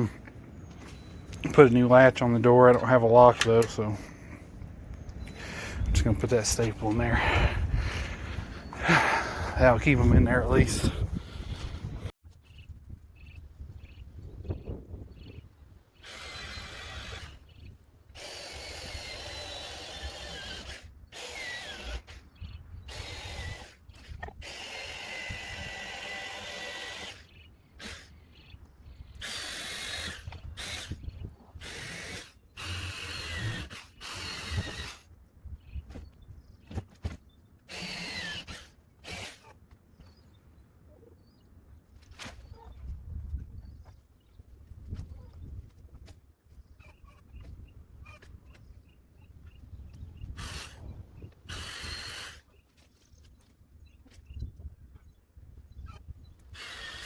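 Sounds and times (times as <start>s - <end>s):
reciprocating saw cutting wood: 16.0s - 17.5s, 18.2s - 22.3s, 22.9s - 28.1s, 29.2s - 35.1s, 37.7s - 39.6s, 50.4s - 52.5s, 56.5s - 57.0s.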